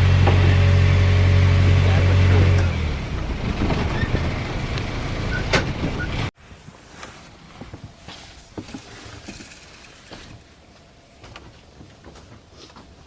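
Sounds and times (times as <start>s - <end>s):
engine humming: 0.0s - 6.3s
wind: 0.0s - 13.0s.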